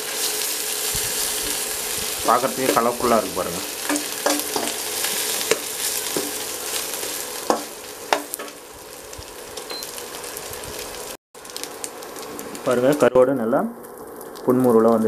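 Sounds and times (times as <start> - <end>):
fish frying in oil: 0.0 - 15.0
metal spatula scraping a pan: 1.0 - 8.6.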